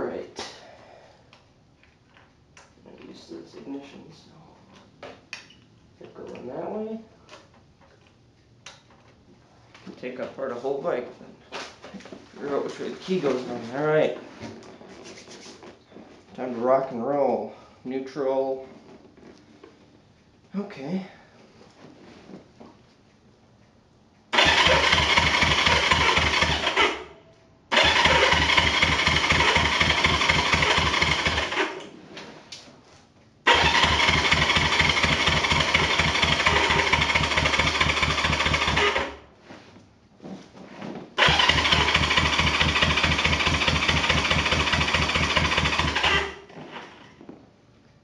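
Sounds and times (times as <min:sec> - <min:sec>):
engine cranking with electric starter: 0:24.3 - 0:27.1, 0:27.7 - 0:31.8, 0:33.5 - 0:39.2, 0:41.2 - 0:46.5.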